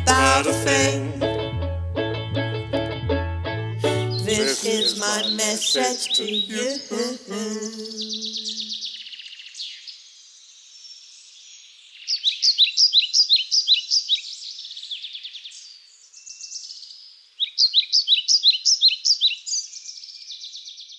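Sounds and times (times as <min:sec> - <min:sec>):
songbird whistling phrases: 0:07.6 - 0:09.0.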